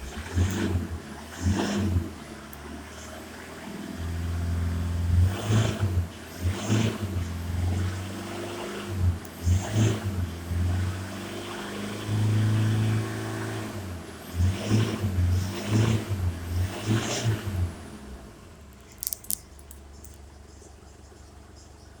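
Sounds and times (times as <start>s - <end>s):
diesel engine revving: 0.0s - 18.9s
sharp clicks: 18.8s - 20.2s.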